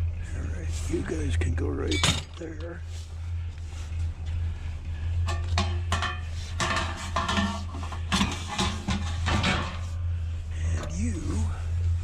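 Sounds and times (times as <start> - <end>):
steady low hum: 0.0 - 12.0
scrap metal clanking and rattling: 1.8 - 2.8, 5.1 - 10.1.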